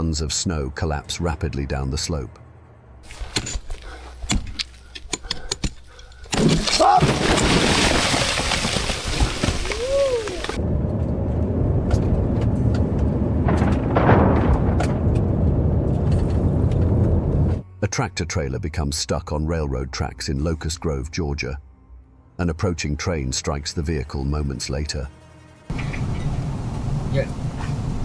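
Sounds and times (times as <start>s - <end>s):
avalanche roar and rumble: 9.3s - 17.6s, 25.0s - 28.0s.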